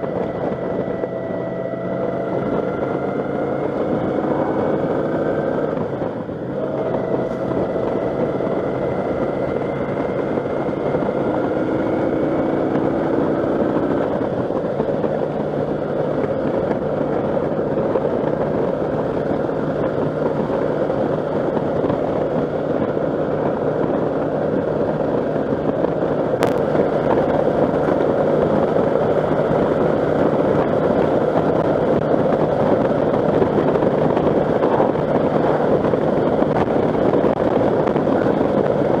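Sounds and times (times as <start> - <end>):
low steady hum: 0.0 - 39.0
wind rushing over rider: 0.0 - 39.0.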